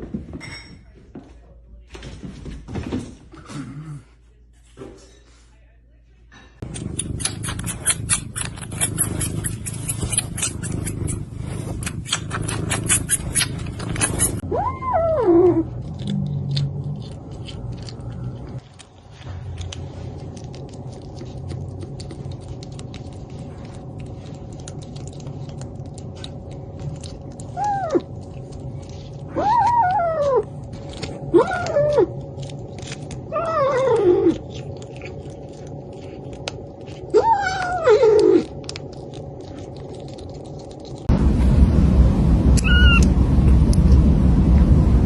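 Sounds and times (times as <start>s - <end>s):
steady low hum: 3.6s - 45.0s
cat meowing: 42.6s - 43.1s.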